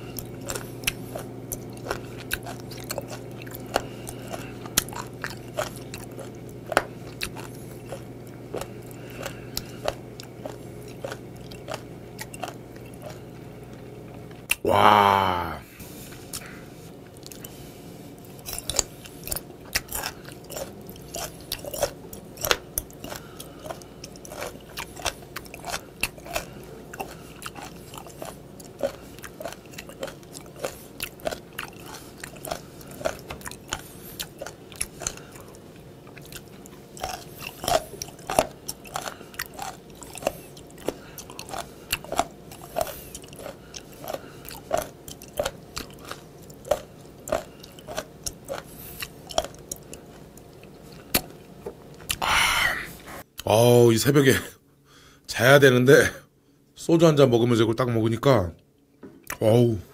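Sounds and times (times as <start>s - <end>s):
crunching and chewing: 0.0s - 14.7s, 15.3s - 52.3s.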